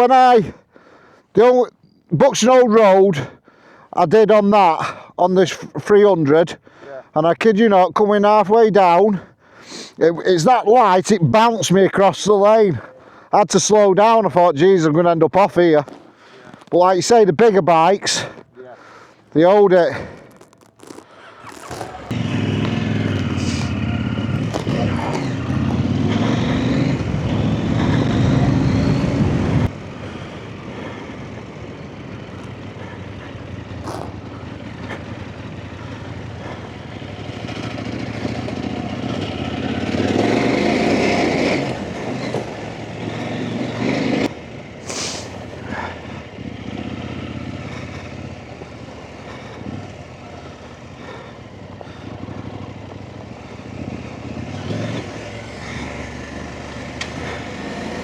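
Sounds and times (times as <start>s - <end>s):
motorcycle engine running: 15.8s - 16.7s, 20.0s - 58.0s.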